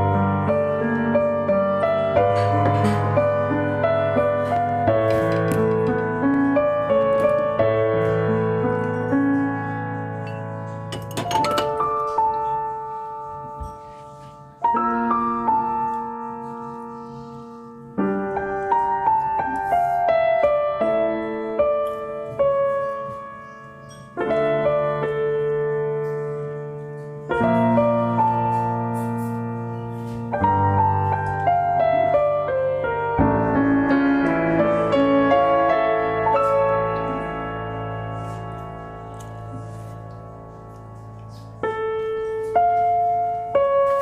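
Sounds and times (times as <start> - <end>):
slow piano piece: 0.0 - 44.0.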